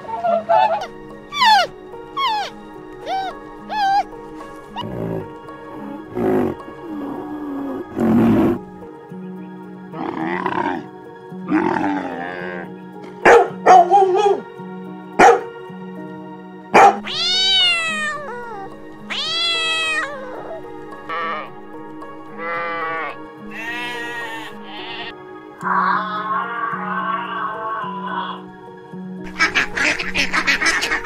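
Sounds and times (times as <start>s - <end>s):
background music: 0.0s - 31.0s
dog barking: 13.2s - 14.4s, 15.2s - 15.5s, 16.7s - 17.1s
cat meowing: 17.0s - 20.6s, 23.6s - 27.6s.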